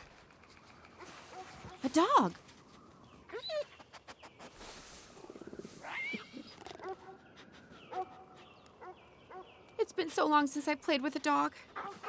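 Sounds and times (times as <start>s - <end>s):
squeaky animal calls and whines: 5.3s - 7.0s.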